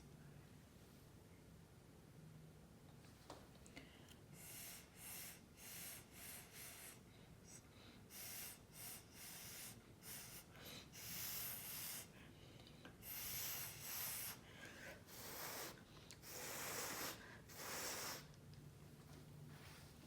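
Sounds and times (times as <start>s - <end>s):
puffs of breath blowing: 4.3s - 18.4s.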